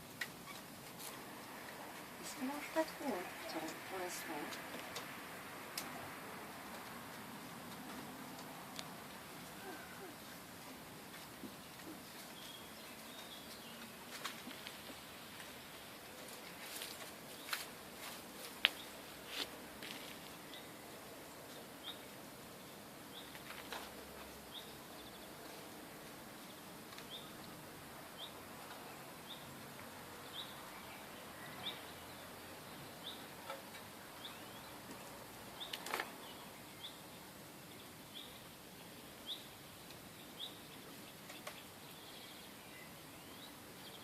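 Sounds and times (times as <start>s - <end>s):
steady background hiss: 0.0s - 44.0s.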